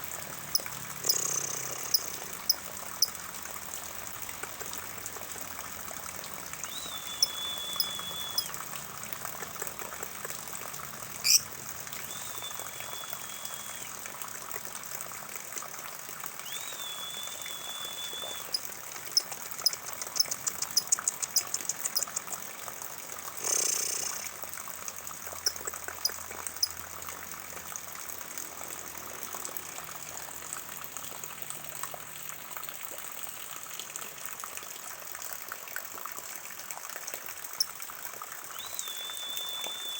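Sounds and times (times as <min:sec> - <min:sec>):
high steady whistle: 0:06.7 - 0:08.5, 0:12.1 - 0:13.9, 0:16.5 - 0:18.6, 0:38.6 - 0:39.9.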